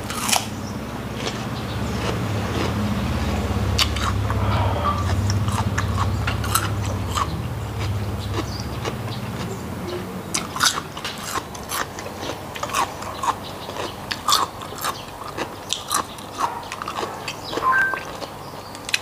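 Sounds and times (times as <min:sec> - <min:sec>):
wet chewing and lip smacking: 0:03.6 - 0:09.6, 0:10.3 - 0:19.0.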